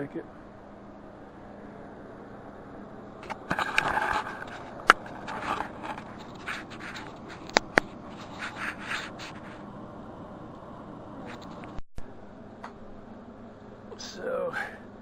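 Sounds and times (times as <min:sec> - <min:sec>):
hard objects scraping: 0:03.2 - 0:09.6.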